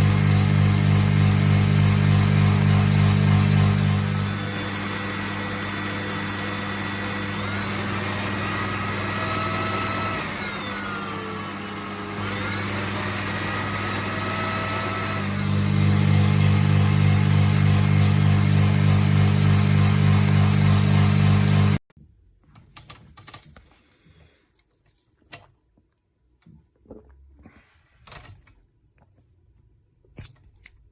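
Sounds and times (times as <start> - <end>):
air compressor motor humming: 0.0 - 21.8.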